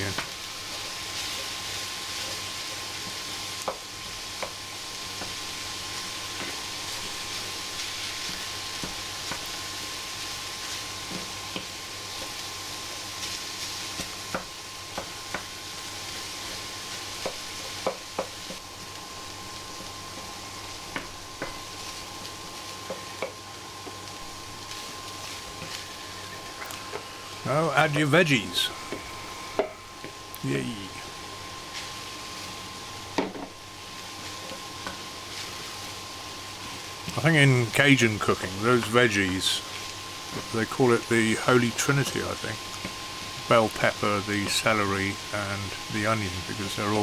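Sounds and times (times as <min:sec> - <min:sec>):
meat sizzling in a frying pan: 0:00.0 - 0:27.4, 0:31.0 - 0:37.1, 0:39.6 - 0:40.5, 0:42.6 - 0:43.4.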